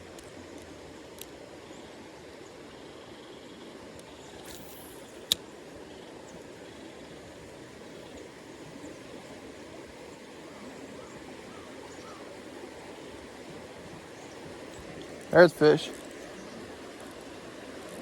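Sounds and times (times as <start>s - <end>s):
river water rushing: 4.5s - 18.0s.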